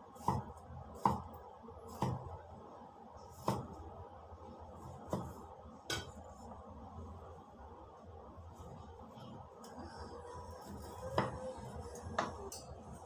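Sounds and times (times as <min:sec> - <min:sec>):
knife chopping on wooden board: 0:00.2 - 0:01.3, 0:01.9 - 0:02.2, 0:03.4 - 0:03.7, 0:05.1 - 0:06.1.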